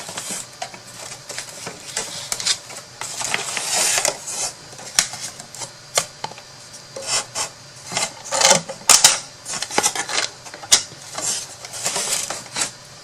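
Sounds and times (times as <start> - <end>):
wood scraping: 0.0 - 5.4, 11.1 - 12.8.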